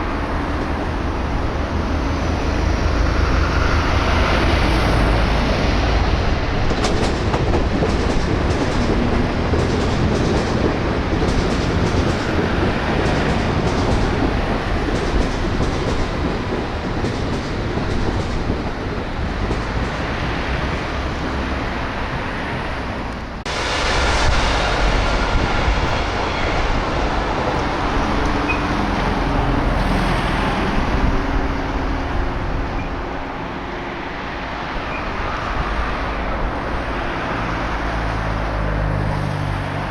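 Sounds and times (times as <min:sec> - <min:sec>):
loud train rumble: 0:00.0 - 0:39.9
train wheels clattering over rail joints: 0:06.5 - 0:21.5.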